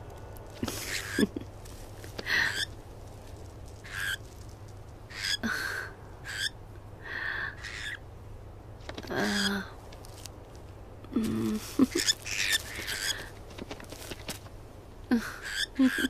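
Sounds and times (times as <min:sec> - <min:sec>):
cartoon bird calls: 0:06.2 - 0:06.6, 0:07.6 - 0:08.0.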